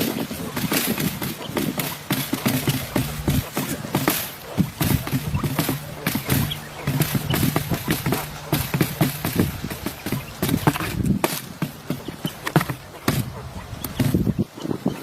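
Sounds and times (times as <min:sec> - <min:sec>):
hard objects knocking and clattering: 0:00.0 - 0:14.4.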